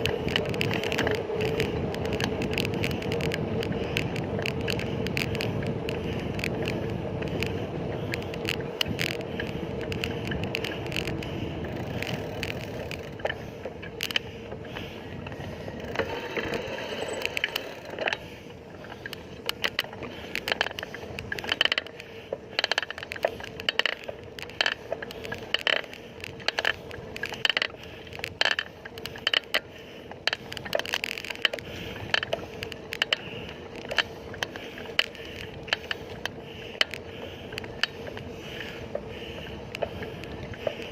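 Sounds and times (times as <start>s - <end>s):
bicycle clicks and rattles: 0.0s - 40.9s
bicycle tyre rumble on road: 0.0s - 40.9s.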